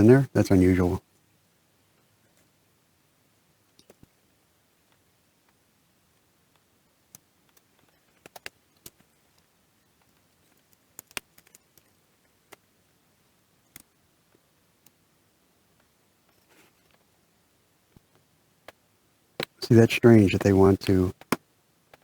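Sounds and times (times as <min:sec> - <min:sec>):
small parts clicking and tapping: 0:06.5 - 0:12.7, 0:13.6 - 0:15.0, 0:21.1 - 0:22.0.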